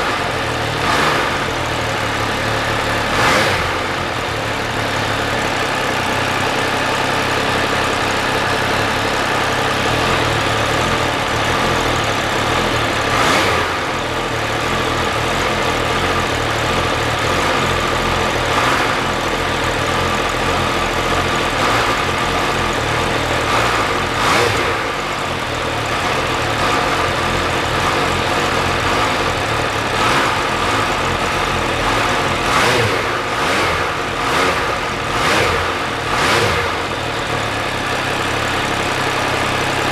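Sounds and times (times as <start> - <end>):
motorcycle engine running: 0.0 - 39.9
short bursts of engine noise: 26.3 - 39.9.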